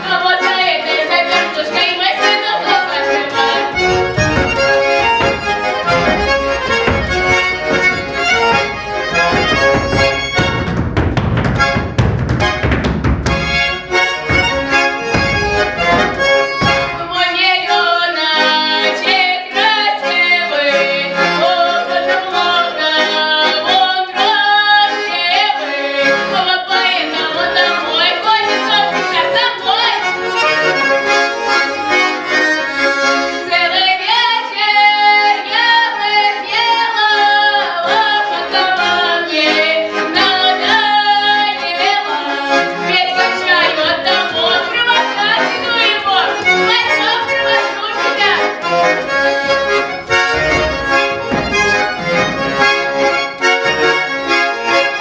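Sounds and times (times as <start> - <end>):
woman singing: 0.0 - 4.1, 16.7 - 30.0, 33.4 - 48.5
accordion playing a lively folk tune: 0.0 - 55.0.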